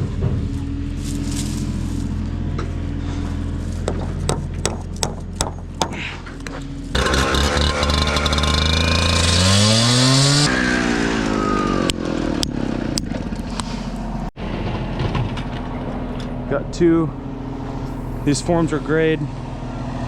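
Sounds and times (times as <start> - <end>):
motor revving: 6.9 - 13.9, 15.2 - 19.5.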